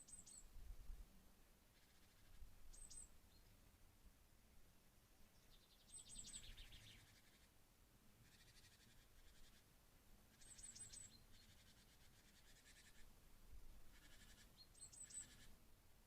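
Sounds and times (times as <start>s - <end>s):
faint songbird trill: 0.0s - 0.6s, 1.7s - 3.6s, 5.2s - 7.6s, 8.2s - 9.7s, 10.3s - 13.1s, 13.9s - 15.6s.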